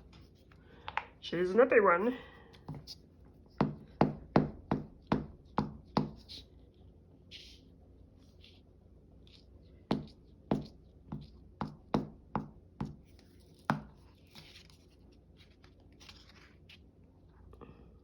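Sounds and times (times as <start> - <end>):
paper rustling: 13.2 - 17.0.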